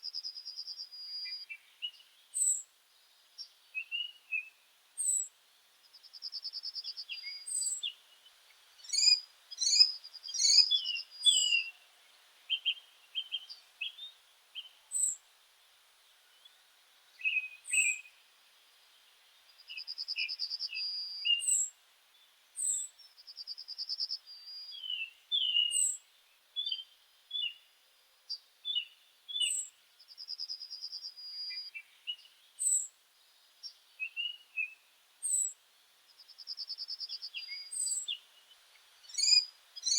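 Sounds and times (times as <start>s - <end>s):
bird song with fast trill: 0.0s - 2.6s, 3.8s - 5.3s, 6.0s - 8.0s, 8.8s - 11.8s, 12.5s - 15.2s, 19.6s - 21.7s, 22.6s - 26.0s, 28.3s - 32.9s, 33.6s - 35.6s, 36.2s - 39.9s
birds chirping: 8.8s - 11.8s, 37.0s - 39.9s.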